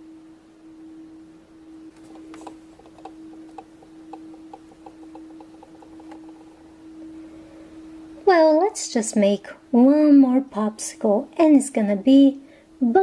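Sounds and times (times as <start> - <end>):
steady hum-like tone: 0.0 - 13.0
light regular ticks: 2.0 - 6.7.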